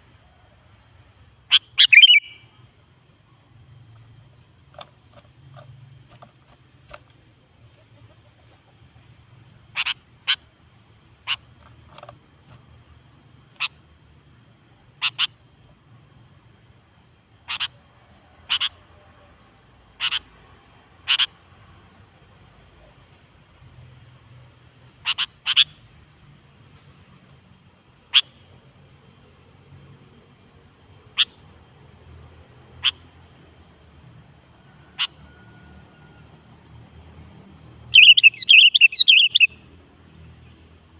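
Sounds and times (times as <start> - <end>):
pulsing insect trill: 0.8 - 40.9.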